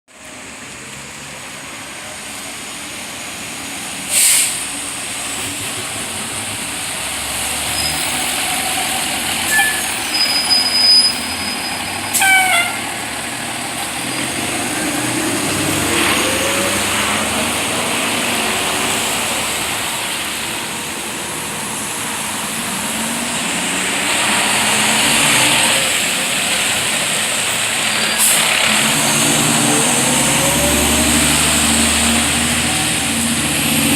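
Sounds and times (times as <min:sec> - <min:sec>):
diesel engines driving past: 0:00.2 - 0:33.9
air brake hisses: 0:04.1 - 0:04.7.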